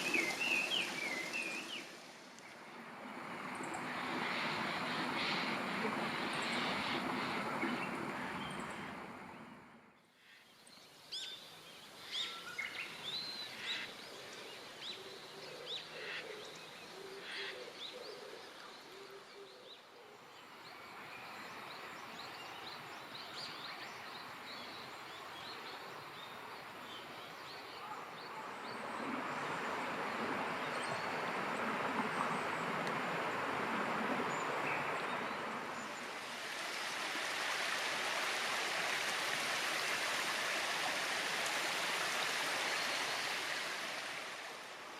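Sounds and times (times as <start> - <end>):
running water rushing: 0.0 - 9.9, 24.2 - 44.9.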